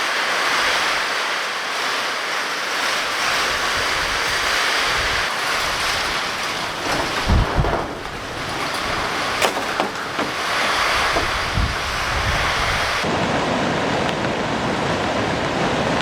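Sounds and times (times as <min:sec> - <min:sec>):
rushing storm water: 0:00.0 - 0:13.9
low thumps: 0:05.4 - 0:13.0.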